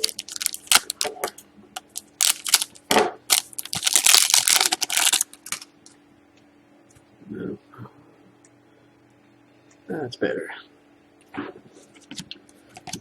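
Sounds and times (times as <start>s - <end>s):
plastic crinkling: 0.0s - 5.7s.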